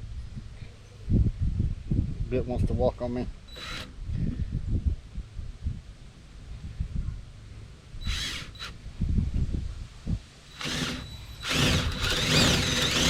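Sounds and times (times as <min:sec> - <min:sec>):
electric drill boring into wood: 0:03.6 - 0:03.9, 0:08.1 - 0:08.8, 0:10.6 - 0:13.0.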